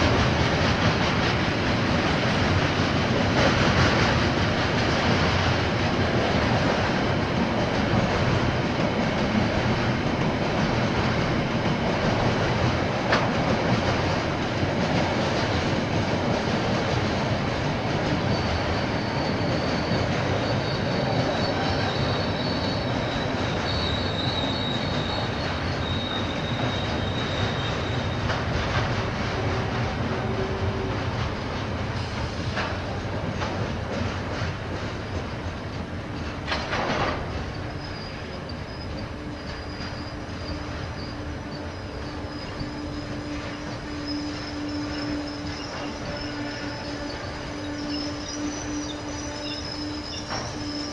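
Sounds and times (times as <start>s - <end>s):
train wheels on rails: 0.0s - 50.9s
faint high wheel squeal: 16.9s - 33.3s, 36.1s - 50.9s.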